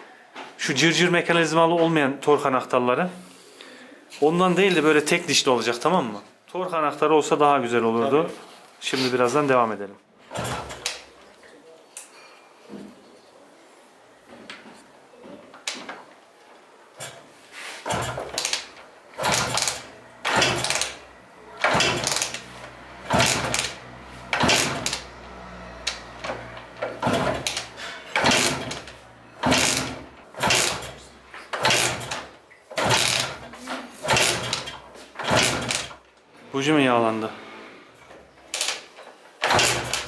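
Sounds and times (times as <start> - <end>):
motorcycle engine being kick-started: 10.3 - 11.1, 17.0 - 36.0, 37.5 - 40.0.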